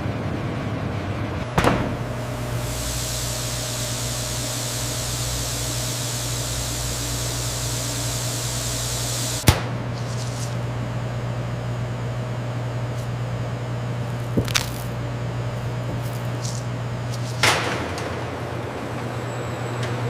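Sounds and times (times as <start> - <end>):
machinery humming: 0.0 - 20.0
machinery hiss: 1.7 - 10.6, 15.6 - 17.9.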